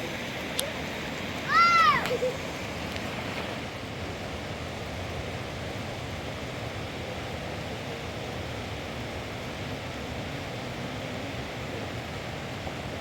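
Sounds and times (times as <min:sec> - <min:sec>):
heavy rain hissing: 0:00.0 - 0:13.0
wind: 0:00.0 - 0:13.0.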